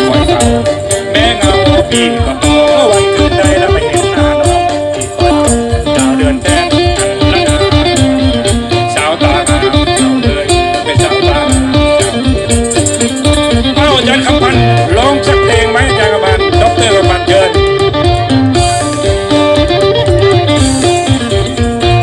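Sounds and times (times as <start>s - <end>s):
rattling shaker: 0.0s - 13.8s
fast drum beat: 0.0s - 22.0s
lute melody: 0.0s - 22.0s
mouth organ melody: 0.0s - 22.0s.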